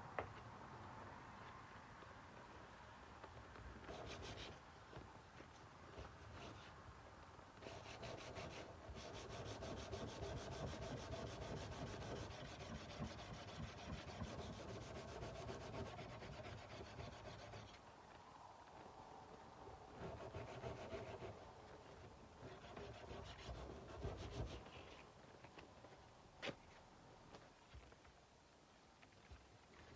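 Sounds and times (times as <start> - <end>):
sandpaper rubbing on metal blade: 7.6 - 17.8.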